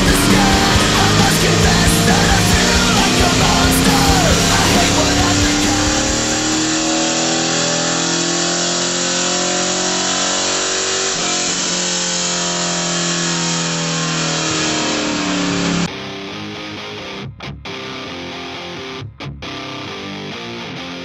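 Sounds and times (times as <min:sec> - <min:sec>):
engine at full throttle: 0:00.0 - 0:15.9.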